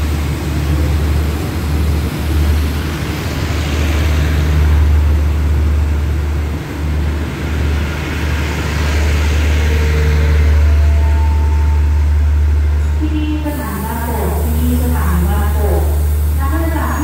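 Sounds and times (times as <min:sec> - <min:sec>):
rushing noise from train wheels: 0:00.0 - 0:17.0
train carriages rumbling past: 0:00.0 - 0:17.0.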